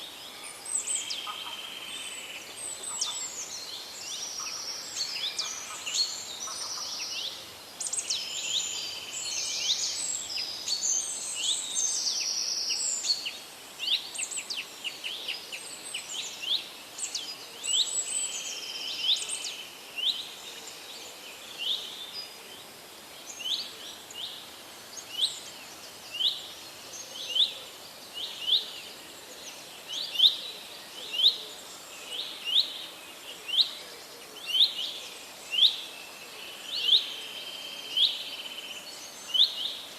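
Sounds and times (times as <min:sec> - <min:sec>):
birds chirping in chorus: 0:00.0 - 0:22.5.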